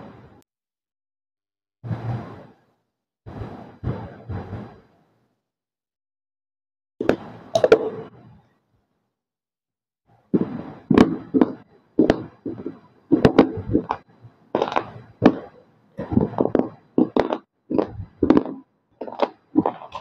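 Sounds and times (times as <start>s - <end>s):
crunching clay chewed: 14.6s - 20.0s.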